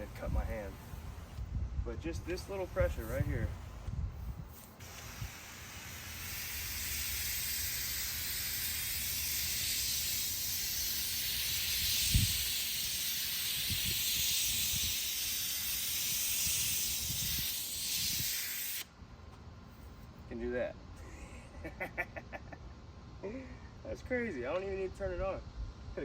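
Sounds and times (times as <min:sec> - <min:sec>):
water spraying onto wooden boards: 0:04.5 - 0:18.9.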